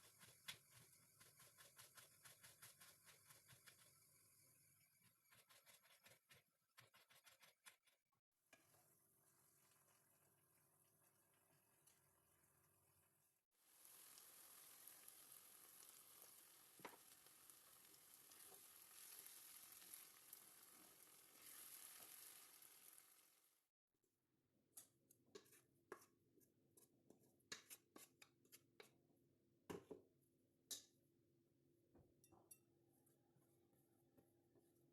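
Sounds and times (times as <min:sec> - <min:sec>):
food sizzling in a hot pan: 0:13.6 - 0:23.6.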